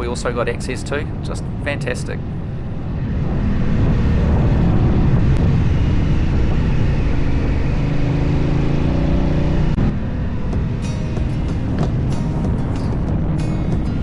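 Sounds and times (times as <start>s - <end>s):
motorcycle engine running: 6.6s - 14.0s.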